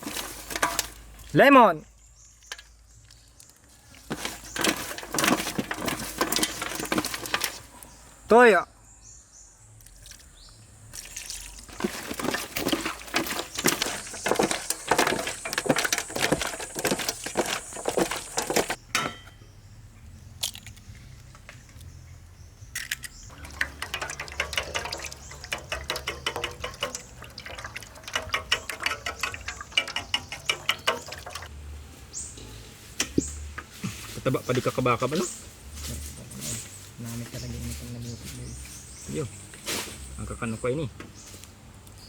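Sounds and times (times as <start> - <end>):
wet squelching and splashing: 10.9 - 18.8, 23.3 - 31.5.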